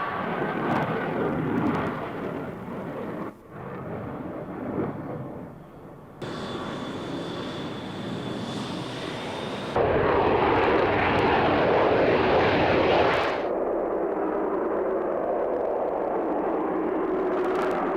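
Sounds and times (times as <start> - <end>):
jet engine: 0.0 - 17.9
high engine whine: 6.2 - 13.6.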